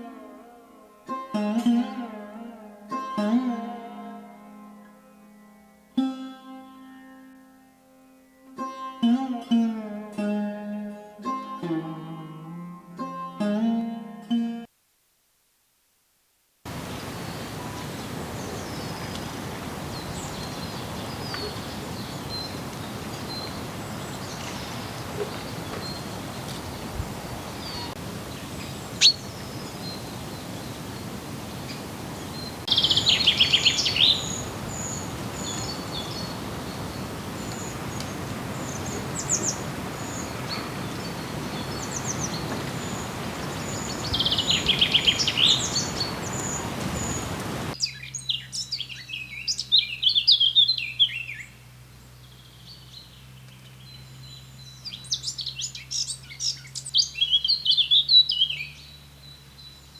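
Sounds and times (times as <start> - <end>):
steady hiss: 14.8 - 47.8
songbirds singing: 16.7 - 59.9.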